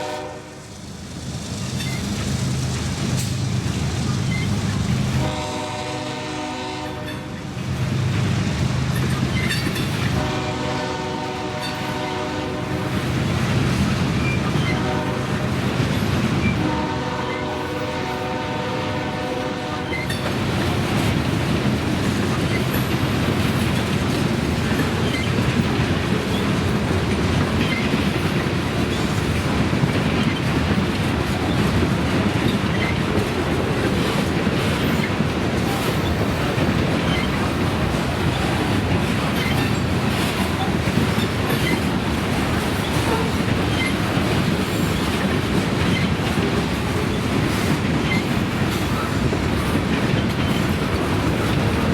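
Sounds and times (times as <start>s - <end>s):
train horn blast: 0.0s - 0.6s, 5.2s - 7.4s, 10.1s - 13.0s, 14.6s - 15.6s, 16.6s - 20.2s
rail clicks: 0.0s - 51.9s
train wheels rumbling on rails: 0.0s - 51.9s.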